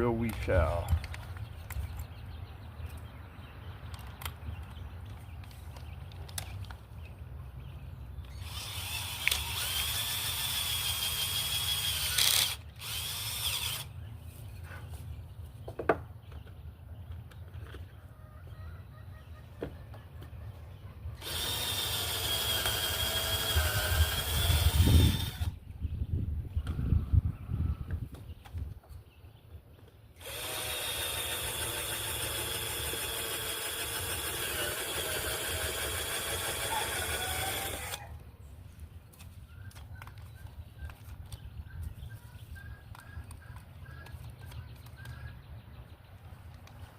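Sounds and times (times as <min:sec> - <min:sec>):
power drill boring into wood: 0:08.3 - 0:13.9, 0:21.2 - 0:25.6, 0:30.2 - 0:38.1.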